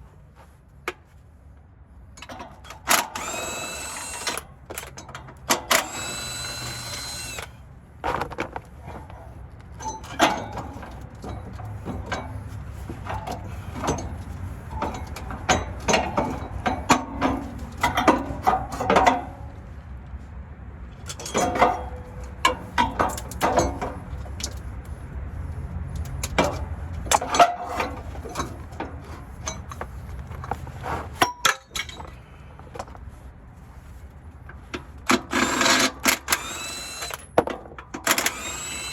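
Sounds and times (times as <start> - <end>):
power tool running: 3.0 - 4.4, 5.7 - 7.6, 35.3 - 37.2, 38.1 - 38.9.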